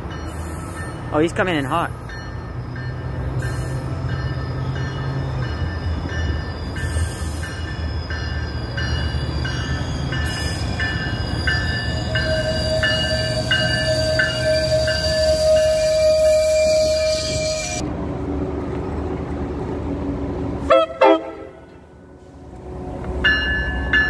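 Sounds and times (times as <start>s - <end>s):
train rumbling: 0.0s - 24.0s
high brake squeal: 6.3s - 17.8s.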